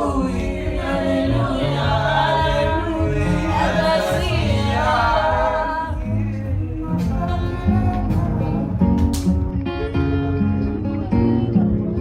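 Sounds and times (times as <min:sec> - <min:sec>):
voices singing in harmony: 0:00.0 - 0:08.8
bass line: 0:00.0 - 0:12.0.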